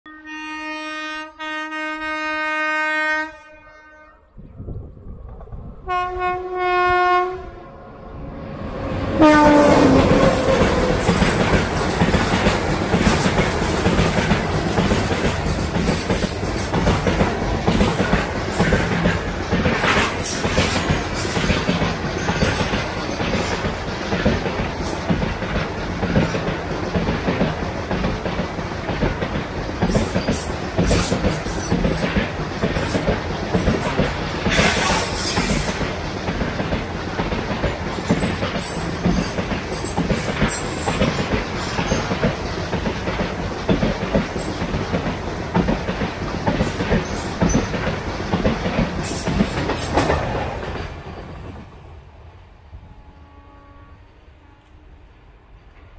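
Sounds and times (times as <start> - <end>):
wheels clattering over rail joints: 9.5 - 51.5.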